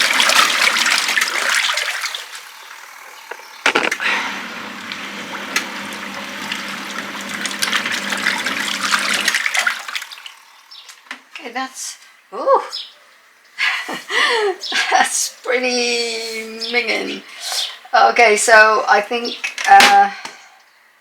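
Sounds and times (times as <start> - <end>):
water sloshing in washing machine: 0.0 - 10.6
washing machine motor humming: 0.0 - 11.6.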